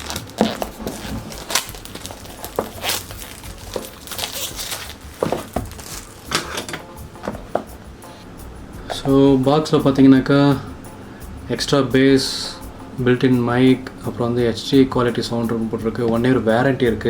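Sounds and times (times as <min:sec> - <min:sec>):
cardboard packaging being opened: 0:00.0 - 0:06.8.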